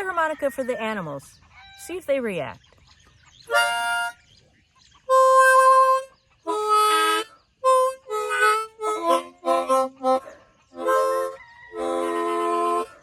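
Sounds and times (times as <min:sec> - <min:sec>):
harmonica playing: 0:03.5 - 0:04.2, 0:05.1 - 0:10.2, 0:10.8 - 0:13.0.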